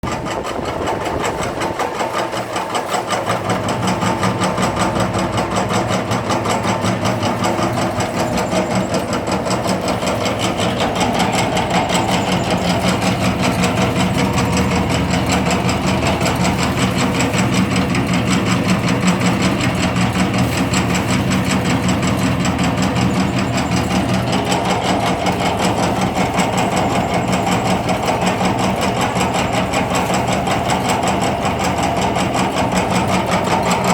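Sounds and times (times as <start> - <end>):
machine motor hum: 0.0 - 33.9
cutting blades clattering: 1.2 - 33.9.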